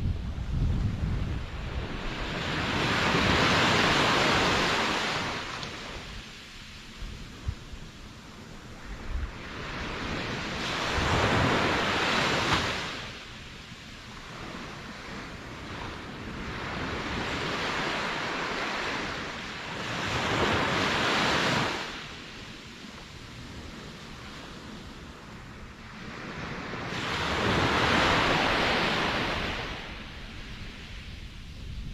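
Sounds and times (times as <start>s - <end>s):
ocean waves surging and washing back: 0.0s - 31.9s.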